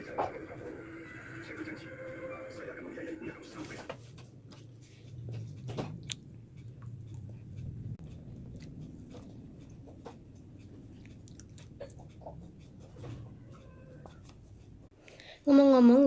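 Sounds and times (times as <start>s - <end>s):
low hum: 0.0s - 14.9s
person chewing food: 4.9s - 14.3s.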